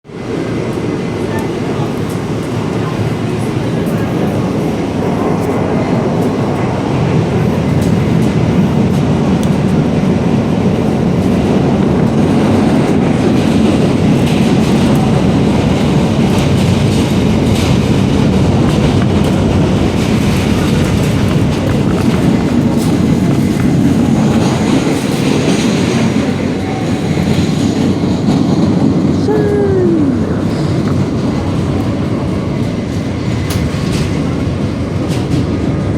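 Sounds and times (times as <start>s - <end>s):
subway train rumbling on rails: 0.0s - 35.9s
wheels clicking over rail joints: 5.2s - 28.9s.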